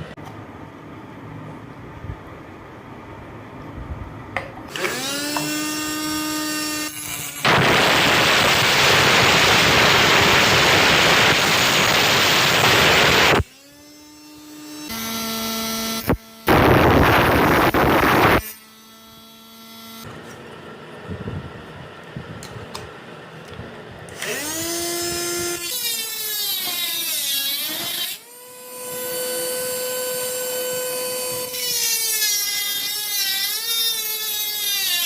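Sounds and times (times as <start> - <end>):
angle grinder disc cutting: 4.7 - 20.1, 24.1 - 35.0
motor whining: 4.7 - 20.1, 24.1 - 35.0.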